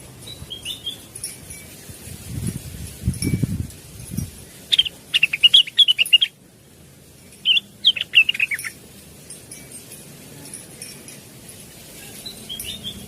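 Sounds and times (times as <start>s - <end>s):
bird singing chirping whistles: 0.4s - 1.0s, 4.7s - 6.3s, 7.4s - 8.7s, 12.3s - 13.0s.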